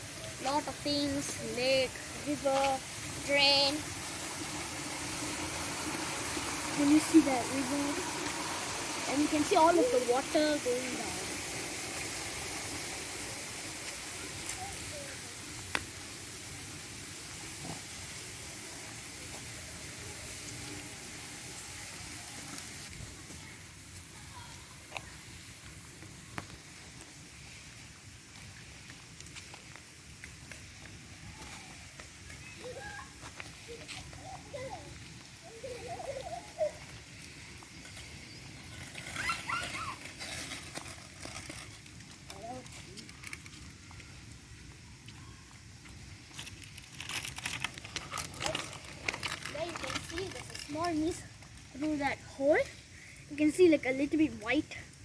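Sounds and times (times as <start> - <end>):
river water rushing: 0.0 - 14.9.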